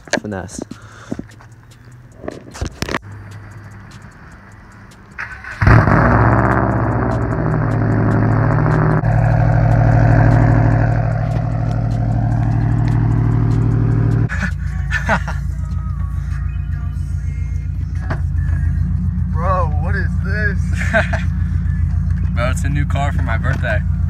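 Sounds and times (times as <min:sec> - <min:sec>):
car engine idling loud: 0:05.5 - 0:16.5, 0:17.1 - 0:24.0.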